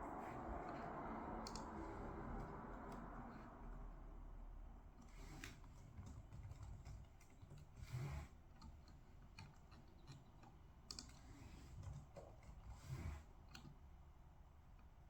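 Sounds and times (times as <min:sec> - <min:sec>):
light clicks and taps: 0:08.6 - 0:11.2.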